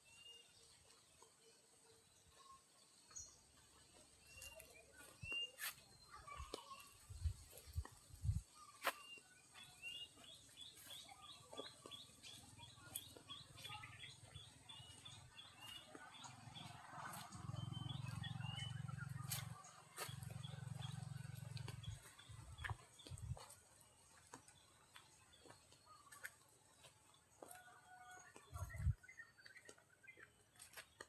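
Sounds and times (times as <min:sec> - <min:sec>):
bird chirping: 0:02.0 - 0:23.6.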